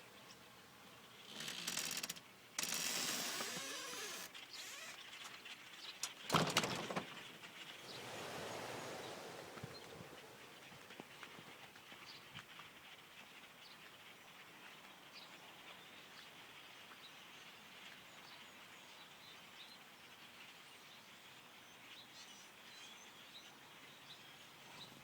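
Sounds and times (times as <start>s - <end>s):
small birds chirping: 3.4s - 20.6s
steady low hiss: 6.1s - 12.1s.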